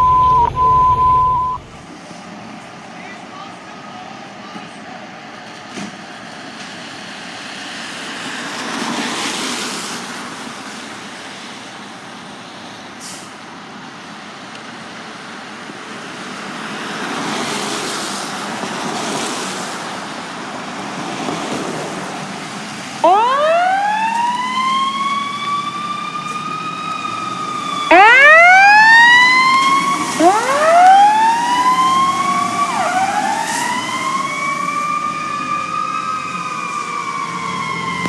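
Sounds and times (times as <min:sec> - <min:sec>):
emergency siren wailing: 0:00.0 - 0:01.8, 0:23.0 - 0:38.0
road traffic passing: 0:01.5 - 0:38.0.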